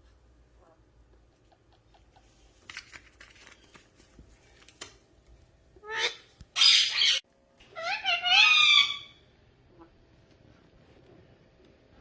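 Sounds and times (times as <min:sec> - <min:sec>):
parrot squawk: 0:05.8 - 0:09.2.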